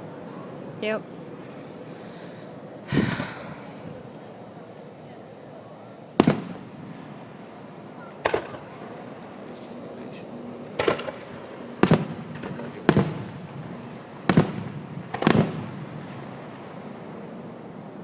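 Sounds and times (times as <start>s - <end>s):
fireworks bangs: 6.1s - 16.8s.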